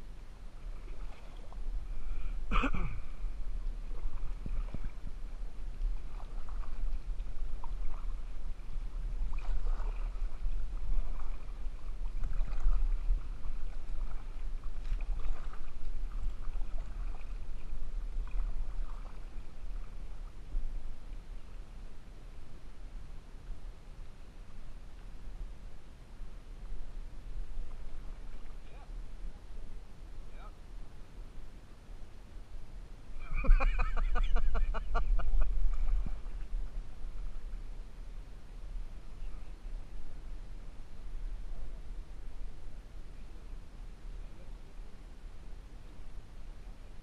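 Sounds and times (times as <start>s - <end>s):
paddle strokes splashing: 0.1s - 22.8s, 26.6s - 29.8s, 33.2s - 39.7s.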